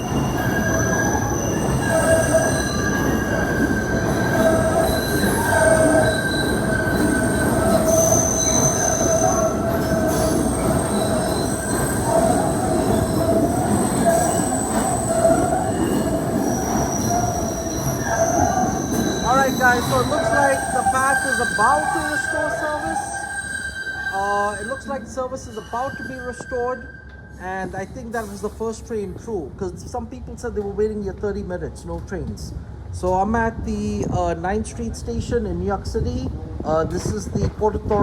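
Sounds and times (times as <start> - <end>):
steel wheels squealing on rails: 0.0 - 29.1
subway train rumbling: 0.0 - 38.0.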